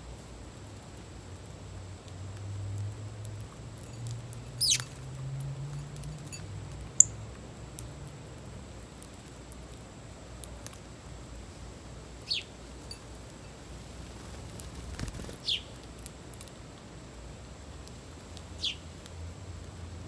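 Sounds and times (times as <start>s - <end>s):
songbird calls sliding downward: 4.6s - 4.9s.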